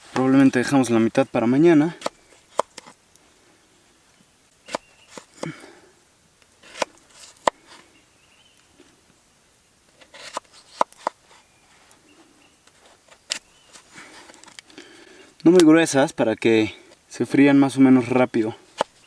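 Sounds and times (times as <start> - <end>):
soft rustles: 9.9 - 15.4.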